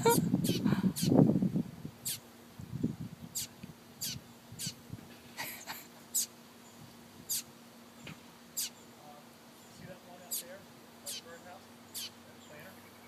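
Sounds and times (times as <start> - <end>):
fledgling bird high chirps: 0.1 - 1.2, 2.0 - 2.2, 3.3 - 4.8, 6.1 - 7.5, 8.5 - 9.0, 9.6 - 13.0.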